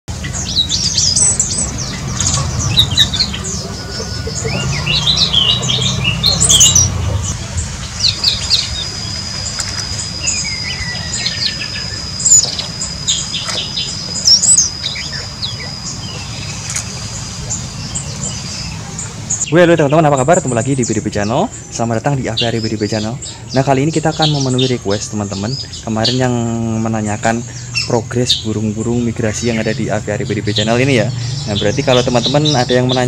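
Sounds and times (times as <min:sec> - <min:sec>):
thin high tone: 0:00.1 - 0:18.0
small birds chirping: 0:00.1 - 0:33.0.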